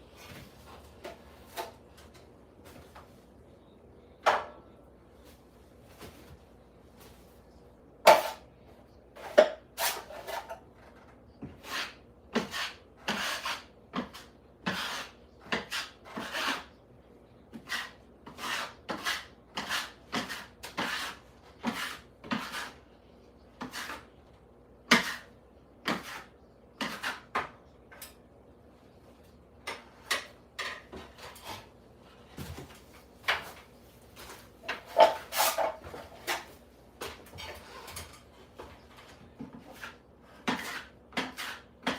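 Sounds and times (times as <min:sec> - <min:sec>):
hand tool scraping hard surface: 0:11.4 - 0:16.8, 0:17.5 - 0:22.8, 0:24.9 - 0:27.4, 0:34.2 - 0:36.6, 0:39.4 - 0:41.9.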